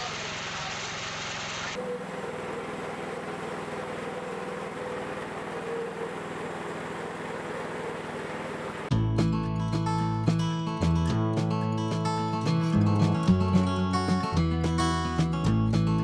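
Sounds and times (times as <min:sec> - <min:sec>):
sawmill engine running: 0:00.0 - 0:16.0.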